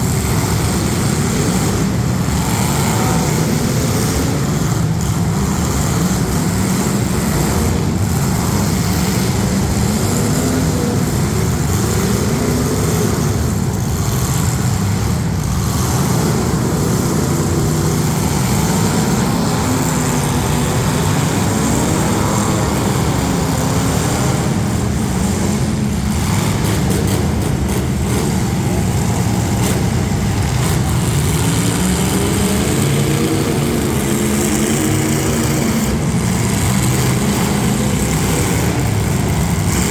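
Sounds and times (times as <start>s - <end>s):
car engines revving: 0.0s - 39.9s.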